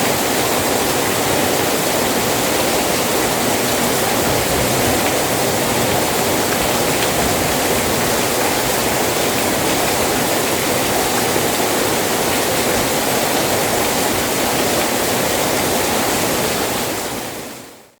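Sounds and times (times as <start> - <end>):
rain falling: 0.0 - 17.8.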